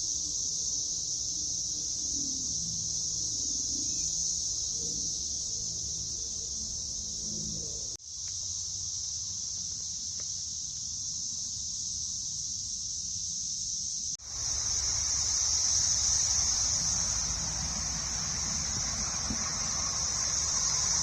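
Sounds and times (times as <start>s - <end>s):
cicadas buzzing: 0.0s - 21.0s.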